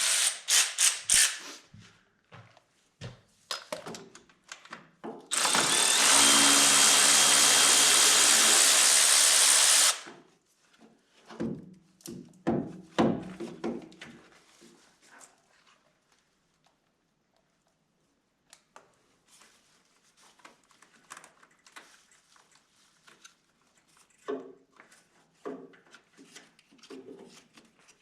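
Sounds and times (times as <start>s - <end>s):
power tool running: 0.0s - 1.4s, 5.3s - 10.1s.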